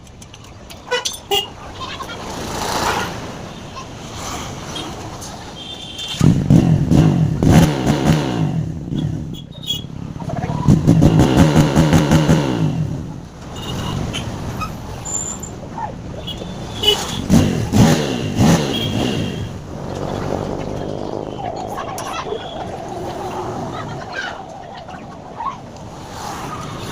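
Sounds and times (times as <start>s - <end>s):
vehicle exhaust revving: 6.2s - 9.4s, 10.2s - 14.4s, 16.4s - 21.3s.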